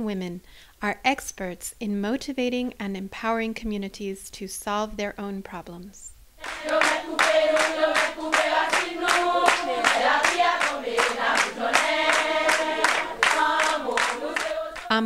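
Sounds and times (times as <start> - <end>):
group of people singing: 6.4 - 15.0
rhythmic hand clapping: 6.4 - 15.0.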